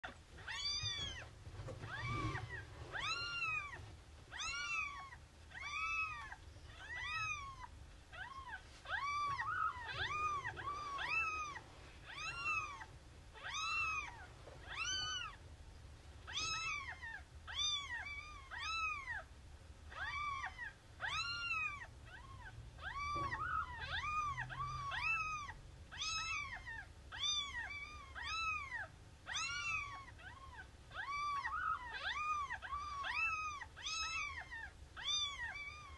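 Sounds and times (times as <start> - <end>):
cat meowing: 0.0 - 15.4, 16.3 - 19.3, 19.9 - 35.9.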